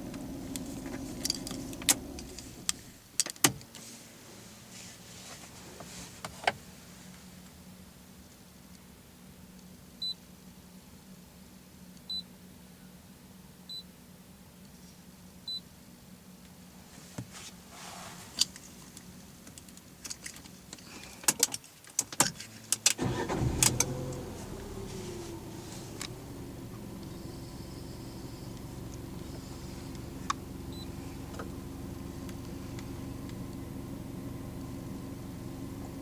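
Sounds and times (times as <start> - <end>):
car engine starting and idling: 0.0 - 3.2, 22.4 - 36.0
steady low hum: 0.0 - 3.2, 22.5 - 36.0.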